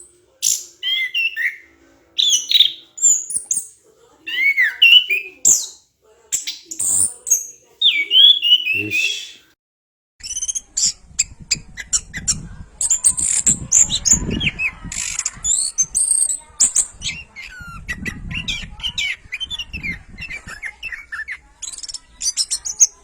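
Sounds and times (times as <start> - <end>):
thrush singing: 4.3 - 5.7, 6.5 - 9.5.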